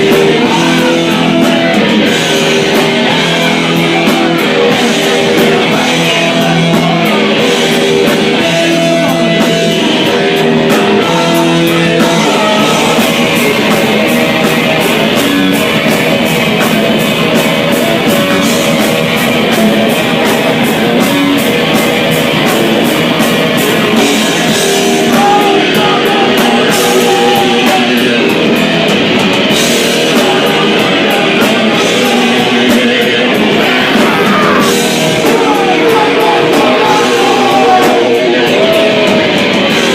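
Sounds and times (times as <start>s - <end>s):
person singing: 0.0s - 14.0s, 23.7s - 28.6s, 29.8s - 39.9s
distorted rock music: 0.0s - 39.9s.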